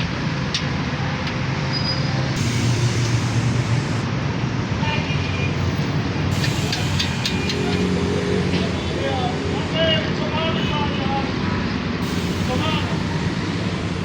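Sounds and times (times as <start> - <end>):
concrete mixer engine running: 2.2 - 10.4, 12.0 - 14.0.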